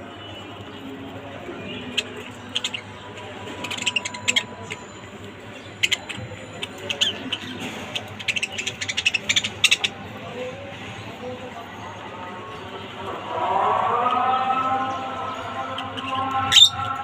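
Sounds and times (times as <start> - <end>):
lovebirds chirping: 0.0 - 10.5, 14.8 - 17.0.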